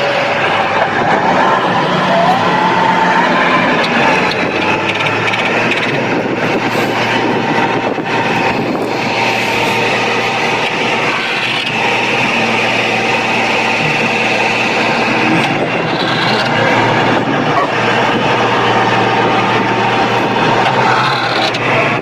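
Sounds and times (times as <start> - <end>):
heavy vehicle engine running hard: 0.0 - 22.0.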